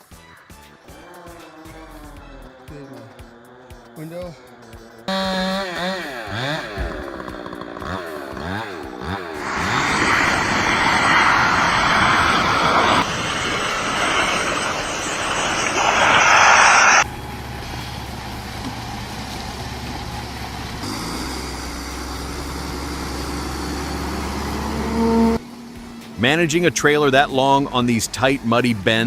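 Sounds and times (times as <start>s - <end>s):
truck engine droning: 0.6s - 29.0s
chainsaw running hard: 0.8s - 13.9s, 17.2s - 26.1s.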